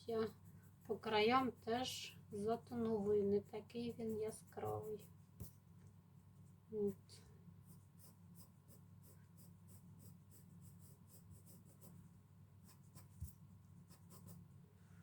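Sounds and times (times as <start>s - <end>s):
pencil strokes on paper: 0.0s - 15.0s.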